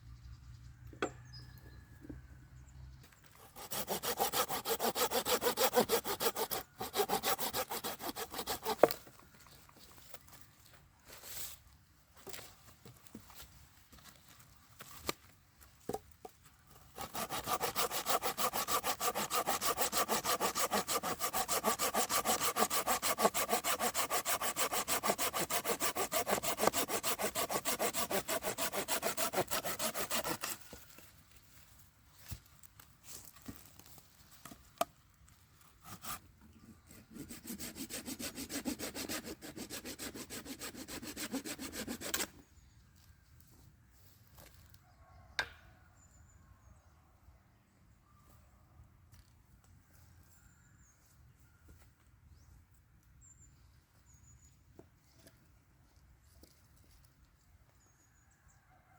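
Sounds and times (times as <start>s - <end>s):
hand saw cutting wood: 3.4s - 9.0s, 16.9s - 30.8s, 35.8s - 36.2s, 36.9s - 42.4s.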